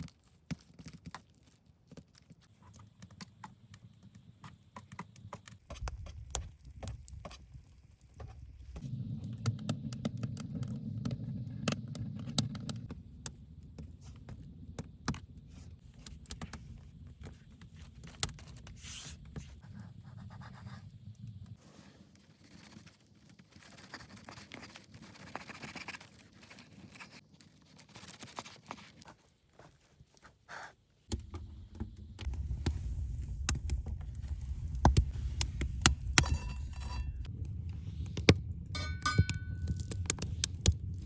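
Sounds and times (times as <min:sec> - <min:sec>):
low rumble: 0:31.1 - 0:41.0
light scrapes and knocks: 0:33.6 - 0:37.3
ringing metal tones: 0:38.7 - 0:39.9.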